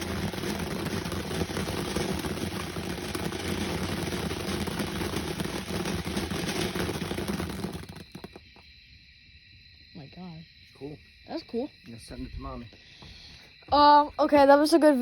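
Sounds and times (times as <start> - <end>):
firework crackling: 0.0 - 8.4
ground firework rushing spray: 0.0 - 8.4.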